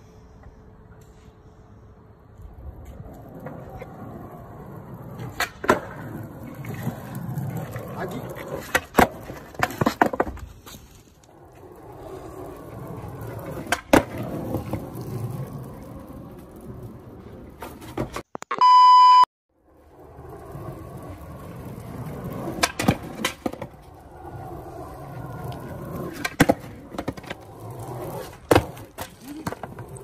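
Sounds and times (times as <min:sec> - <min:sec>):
skateboard wheels rumbling on concrete: 0:02.2 - 0:18.2, 0:19.6 - 0:30.0
skateboard clacks: 0:02.8 - 0:10.5, 0:11.2 - 0:18.2, 0:20.2 - 0:30.0
test-tone beep: 0:18.4 - 0:19.3.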